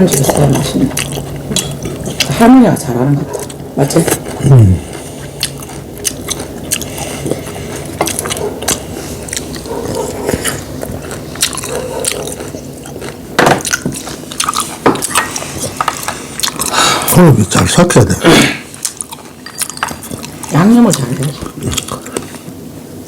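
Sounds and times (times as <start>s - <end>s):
chewing and biting: 0.0s - 2.4s, 3.2s - 16.8s, 18.7s - 22.6s.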